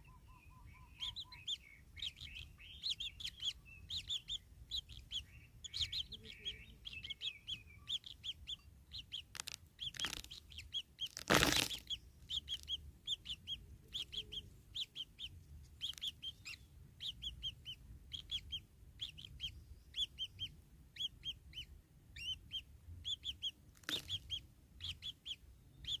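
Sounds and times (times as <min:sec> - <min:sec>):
bird chicks chirping: 0:00.0 - 0:26.0
rustling: 0:11.0 - 0:12.0.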